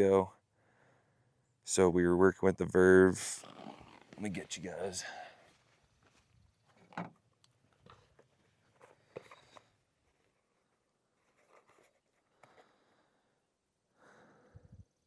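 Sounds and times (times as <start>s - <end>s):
faint clicks and rustles of handling: 3.4s - 13.0s.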